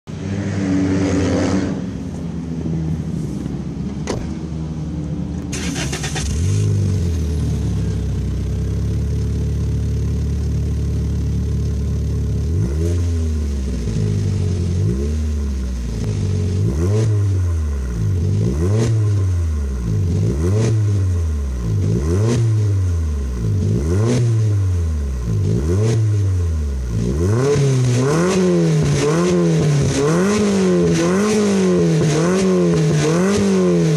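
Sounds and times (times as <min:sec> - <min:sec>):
car engine idling and revving: 0:00.0 - 0:33.9.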